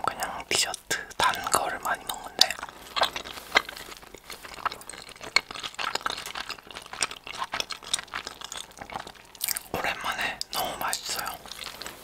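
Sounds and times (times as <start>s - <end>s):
chewing with wet mouth smacks: 0.0s - 12.0s.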